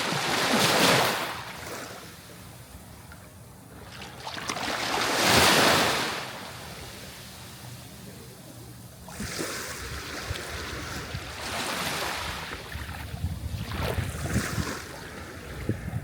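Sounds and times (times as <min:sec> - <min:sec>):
sea waves breaking on shore: 0:00.0 - 0:02.5, 0:03.8 - 0:08.0, 0:09.0 - 0:16.0
wind buffeting microphone: 0:09.7 - 0:11.5, 0:12.2 - 0:16.0.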